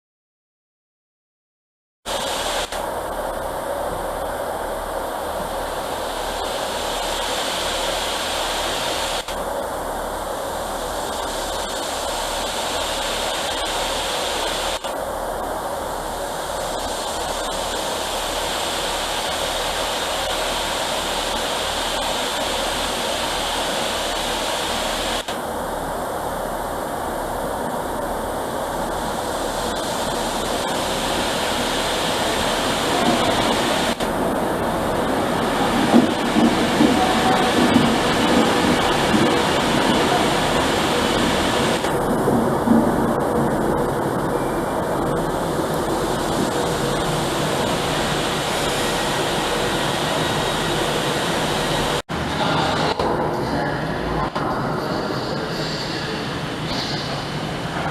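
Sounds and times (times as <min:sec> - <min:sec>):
steady rushing noise: 0:02.1 - 0:57.9.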